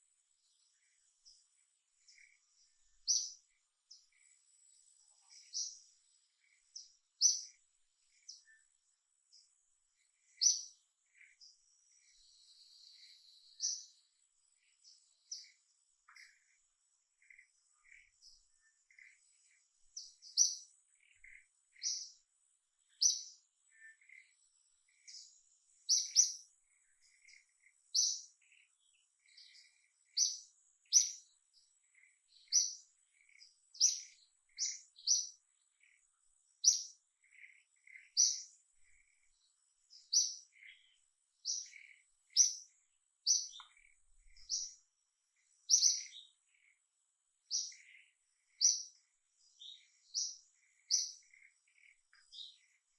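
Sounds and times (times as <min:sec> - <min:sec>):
bird chirping: 0:00.0 - 0:52.9.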